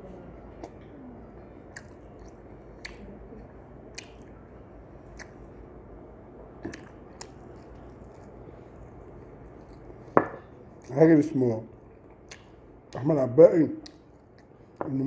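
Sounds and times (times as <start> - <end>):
man chewing food: 0.4 - 11.0, 11.7 - 13.0, 13.8 - 14.8
wet mouth-smacking clicks: 1.7 - 4.4, 5.1 - 5.4, 6.6 - 8.3, 12.0 - 13.0, 13.8 - 14.5.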